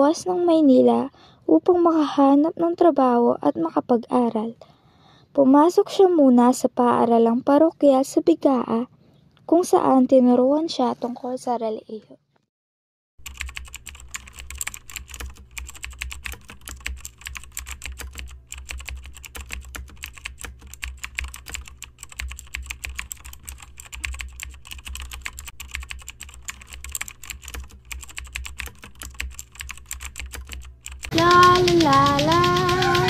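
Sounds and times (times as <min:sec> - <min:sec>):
keyboard keys clicking: 0:13.2 - 0:33.0.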